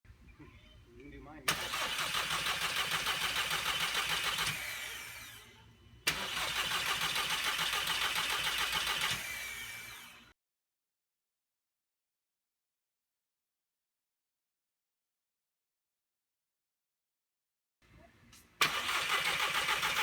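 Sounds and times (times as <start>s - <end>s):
car engine cranking by starter: 1.4s - 5.5s, 6.1s - 10.3s, 18.6s - 20.0s.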